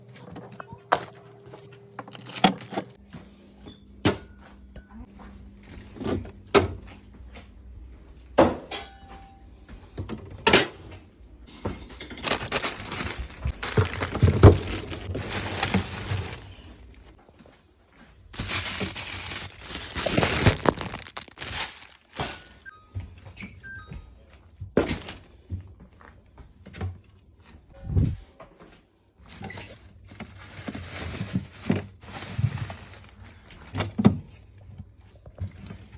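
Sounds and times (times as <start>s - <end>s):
fridge shelves and drawers clunking: 0.0s - 3.0s, 11.5s - 17.1s, 18.4s - 22.7s, 24.7s - 25.3s, 29.3s - 34.7s.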